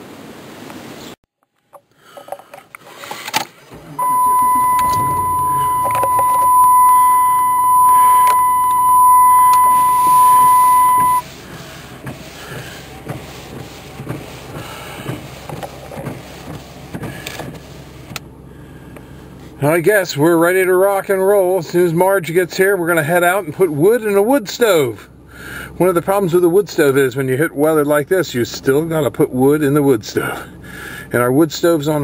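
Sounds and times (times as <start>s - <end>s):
low vehicle rumble: 3.5s - 31.2s
electronic beep tone: 4.0s - 11.2s.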